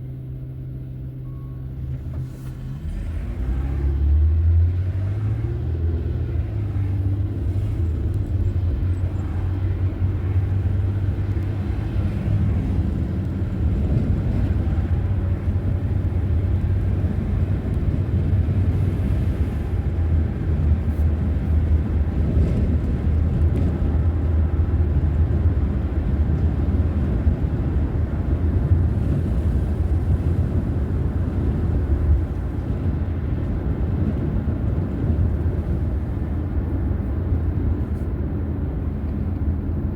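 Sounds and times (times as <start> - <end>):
car driving rumble: 0.0 - 39.9.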